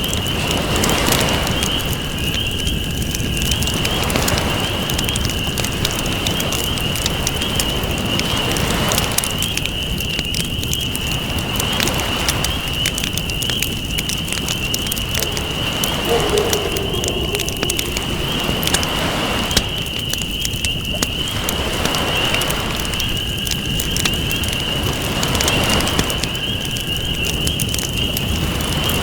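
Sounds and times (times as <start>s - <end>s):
campfire crackling and popping: 0.0s - 29.0s
waves washing in and out: 15.1s - 20.2s.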